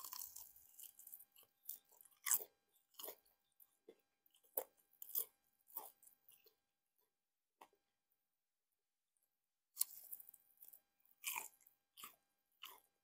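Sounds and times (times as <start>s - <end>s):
crunchy fried chicken chewing: 0.0s - 6.7s, 9.7s - 13.0s.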